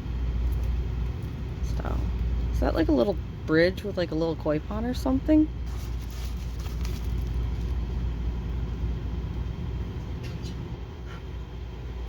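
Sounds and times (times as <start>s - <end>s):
steady low rumble: 0.0s - 12.0s
faint rustles: 5.6s - 8.0s.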